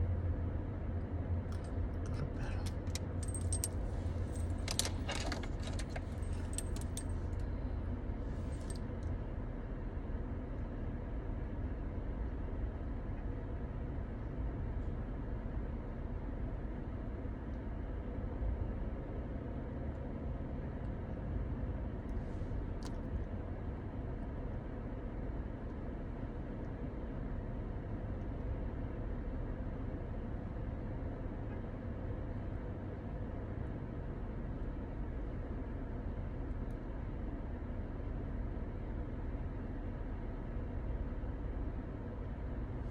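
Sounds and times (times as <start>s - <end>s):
car engine running: 1.4s - 9.0s
faint even hum: 1.5s - 9.0s.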